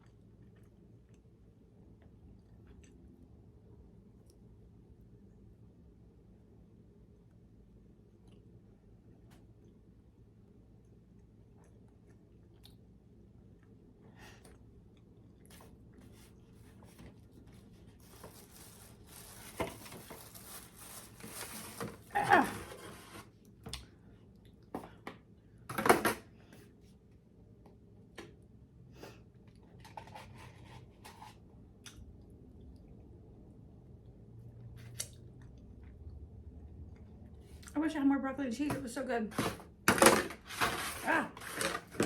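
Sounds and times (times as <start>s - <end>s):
rustling: 16.1s - 23.3s.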